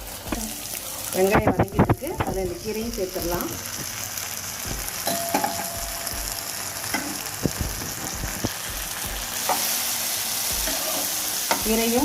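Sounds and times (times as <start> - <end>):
onions sizzling in oil: 0.0 - 12.0
spatula scraping and knocking pan: 10.6 - 11.8.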